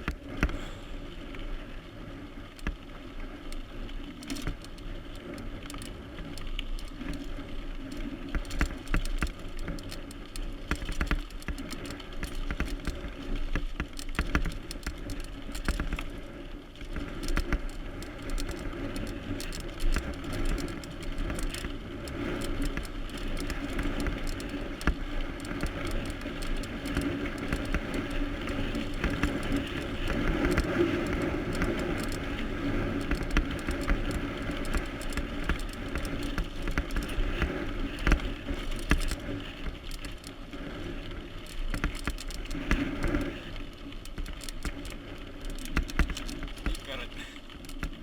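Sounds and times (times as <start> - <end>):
bike rattles and clicks: 0.0 - 48.0
bike tires rolling on trail: 0.0 - 48.0.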